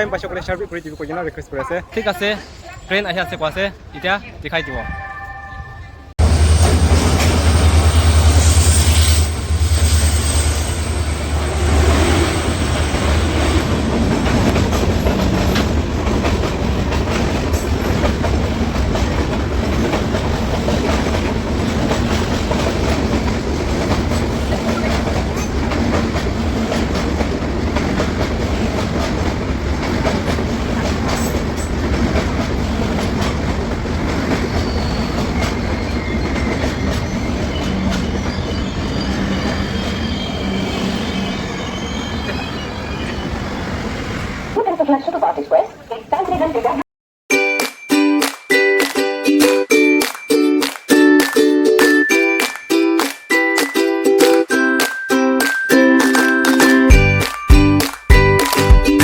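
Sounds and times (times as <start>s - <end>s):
train locomotive rumble: 0.0s - 46.8s.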